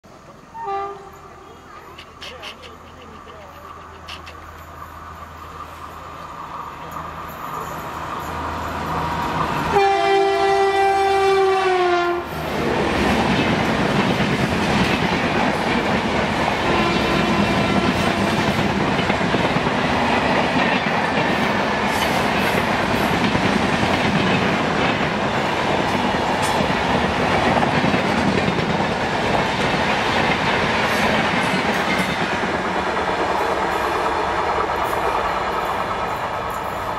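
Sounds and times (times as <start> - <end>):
locomotive horn: 0.5 - 1.3, 9.6 - 12.3, 16.6 - 18.5
train wheels clattering over rails: 1.7 - 10.8, 12.3 - 36.9.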